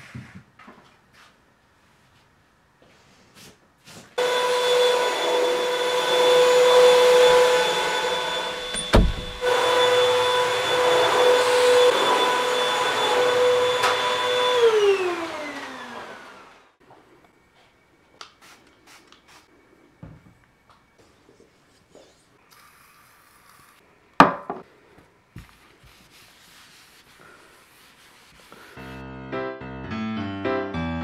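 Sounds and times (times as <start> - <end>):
vacuum motor winding down: 4.2 - 16.7
vacuum cleaner motor whine: 4.2 - 17.2
thump: 8.7 - 9.4.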